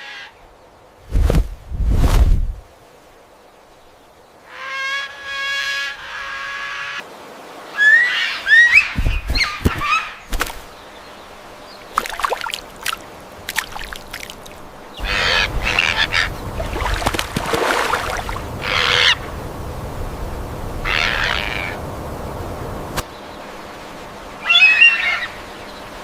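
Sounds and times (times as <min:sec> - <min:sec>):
raspy bird squawks: 0:15.0 - 0:16.4, 0:18.6 - 0:19.2, 0:20.8 - 0:21.8, 0:24.4 - 0:25.4.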